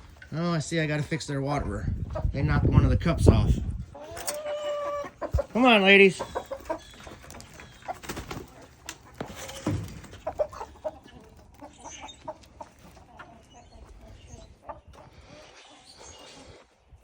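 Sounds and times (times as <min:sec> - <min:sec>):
hens clucking softly: 0:03.9 - 0:16.7.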